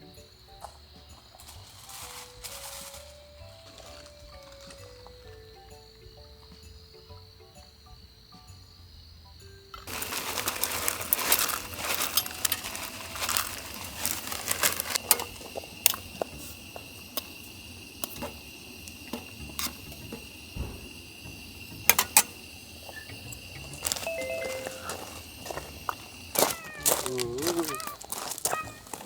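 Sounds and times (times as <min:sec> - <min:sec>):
firewood crackling and popping: 0:01.4 - 0:05.4, 0:09.8 - 0:29.0.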